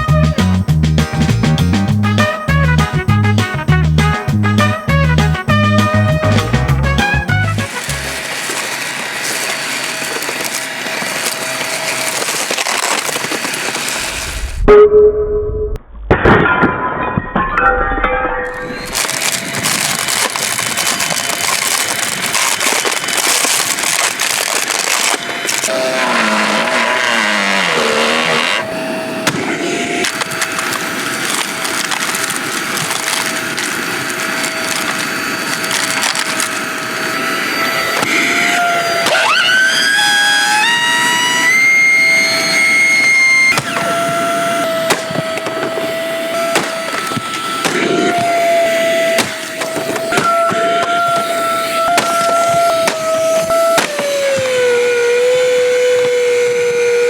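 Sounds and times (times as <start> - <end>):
steady whine: 0.0 - 57.0
plastic cracking and splintering: 7.0 - 14.3, 18.5 - 28.6, 30.0 - 57.0.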